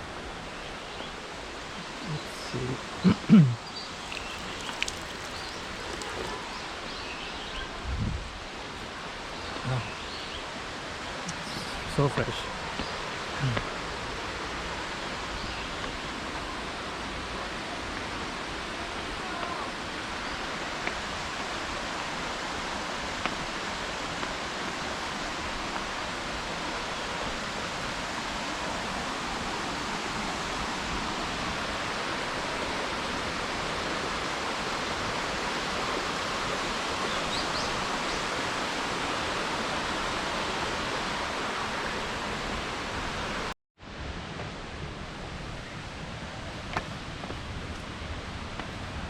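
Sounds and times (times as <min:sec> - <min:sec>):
waterfall rushing: 0:04.0 - 0:07.0.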